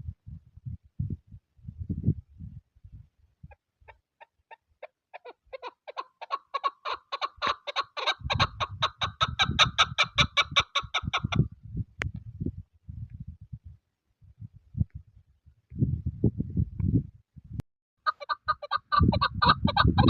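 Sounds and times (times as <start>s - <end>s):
wind buffeting microphone: 0.0s - 3.9s, 7.4s - 17.6s, 18.2s - 20.0s.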